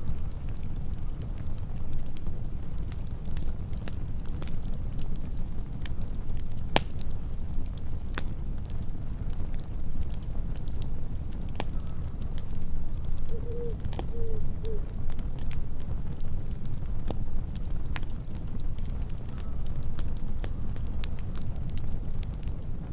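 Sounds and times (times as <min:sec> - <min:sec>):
cricket chirping: 0:00.0 - 0:03.0, 0:09.2 - 0:14.9, 0:15.5 - 0:17.1, 0:18.8 - 0:22.4
campfire crackling and popping: 0:00.0 - 0:22.9.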